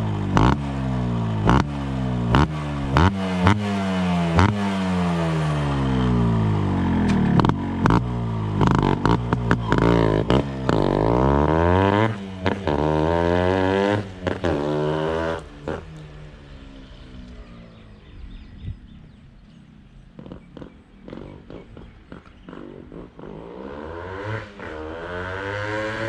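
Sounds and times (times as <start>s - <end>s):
two-stroke engine revving: 0.0s - 18.2s, 19.4s - 26.0s
exhaust cracks: 5.2s - 13.0s.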